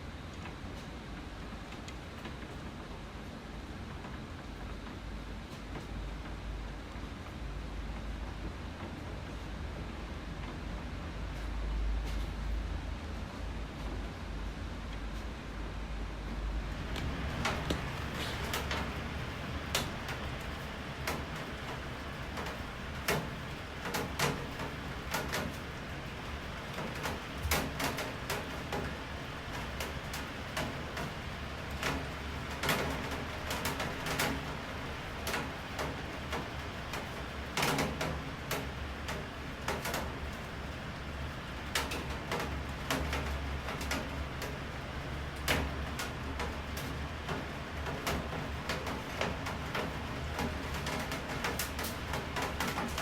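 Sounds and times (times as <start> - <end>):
raindrops tapping hard surface: 16.9 - 21.8.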